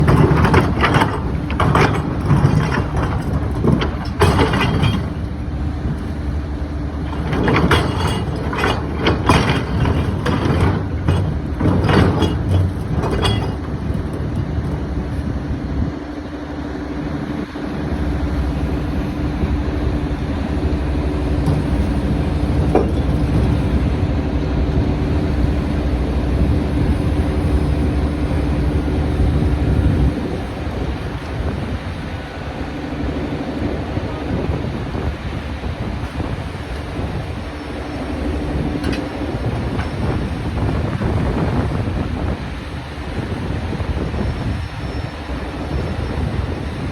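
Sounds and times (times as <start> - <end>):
machine knocks and scrapes: 0.0 - 15.2, 21.1 - 24.0, 37.6 - 41.8
diesel engine running: 0.0 - 46.9.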